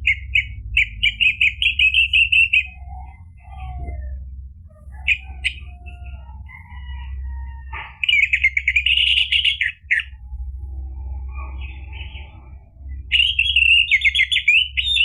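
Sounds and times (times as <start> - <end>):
bird singing whistled notes: 0.0 - 4.2, 8.0 - 10.3, 11.1 - 15.0
steady low hum: 0.0 - 15.0
bird chattering run: 7.8 - 10.2.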